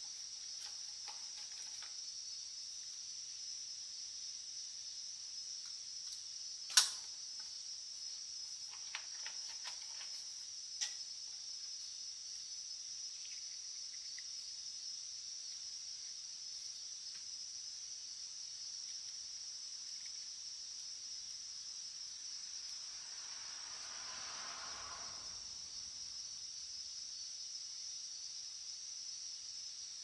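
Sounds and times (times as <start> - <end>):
steady high-pitched hiss: 0.0 - 30.0.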